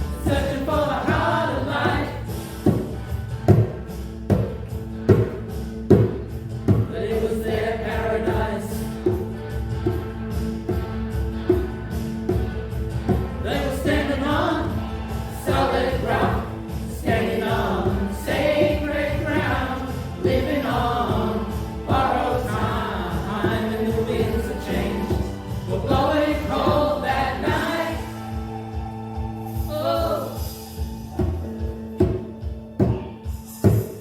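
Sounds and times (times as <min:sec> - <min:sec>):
choir singing: 0:00.0 - 0:02.7, 0:06.8 - 0:09.3, 0:13.1 - 0:30.6
instrumental accompaniment: 0:00.0 - 0:34.0.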